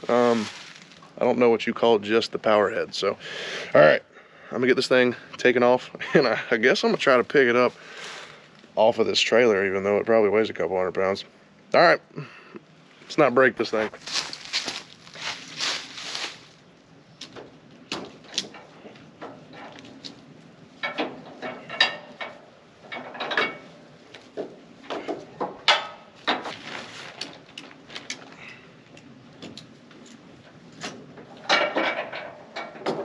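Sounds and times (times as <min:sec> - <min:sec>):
metal clanks and rattles: 0:17.3 - 0:28.2, 0:29.4 - 0:33.0.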